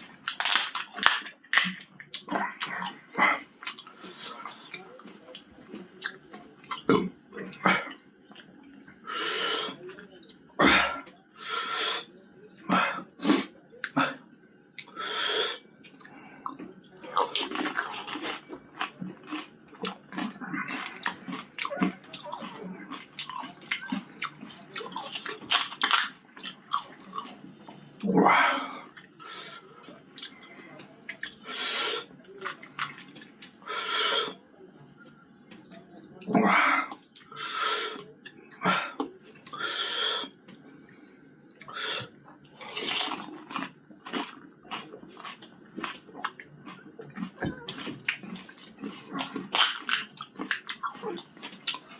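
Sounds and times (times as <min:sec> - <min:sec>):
crunchy chewing: 0:00.0 - 0:51.9
puri shells crunching: 0:00.1 - 0:02.3, 0:17.2 - 0:27.3, 0:42.6 - 0:51.9.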